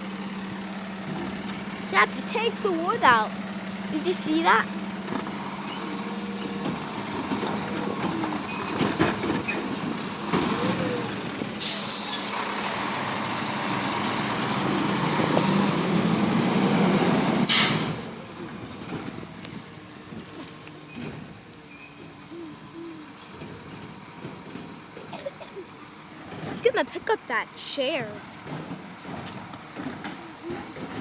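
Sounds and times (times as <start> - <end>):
garbage truck engine running: 0.0 - 31.0
air brakes hissing: 9.7 - 13.8, 17.3 - 23.6.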